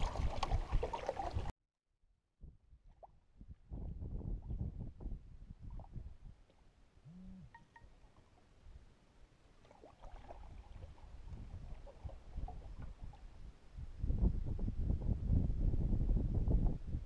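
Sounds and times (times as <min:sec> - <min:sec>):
water splashing and lapping: 0:00.0 - 0:01.5, 0:09.4 - 0:13.5.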